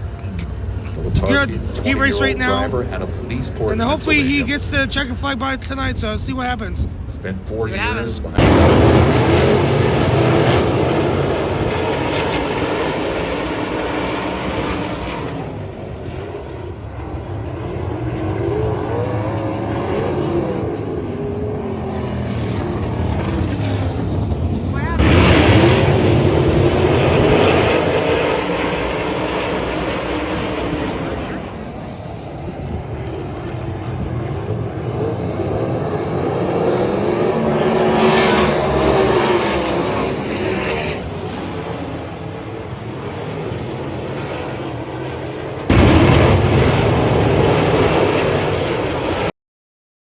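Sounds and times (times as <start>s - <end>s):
sprint car engines running: 0.0s - 46.2s.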